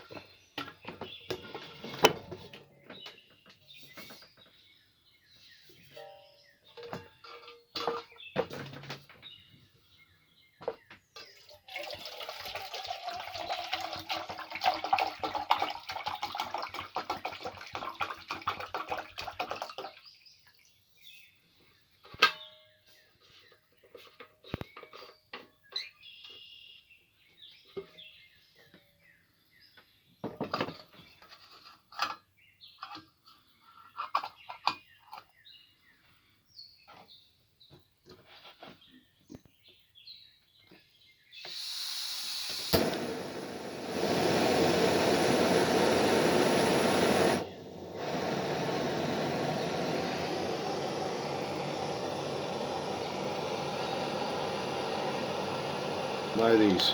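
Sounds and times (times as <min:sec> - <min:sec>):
water pouring into a pot: 0:11.4 - 0:20.1.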